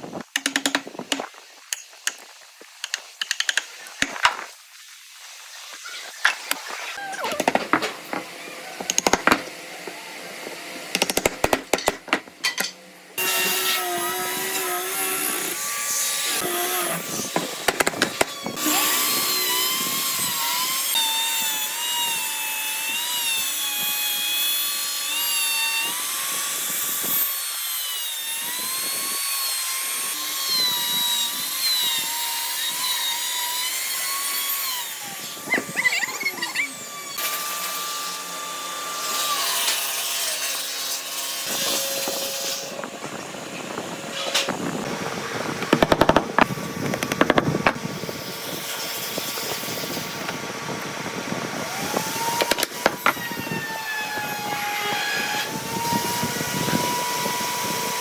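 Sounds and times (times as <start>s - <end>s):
knocks and clicks: 0.2s - 2.2s, 2.8s - 4.4s, 7.3s - 9.5s, 45.6s - 47.8s
power tool motor cutting wood: 6.4s - 12.4s, 13.2s - 58.0s.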